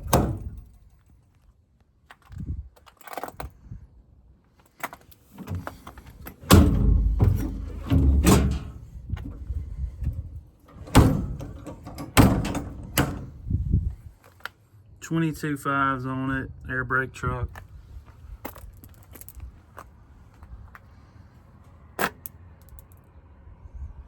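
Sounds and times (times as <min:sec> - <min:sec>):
truck door heavy thuds: 0:00.0 - 0:00.6, 0:05.4 - 0:13.5.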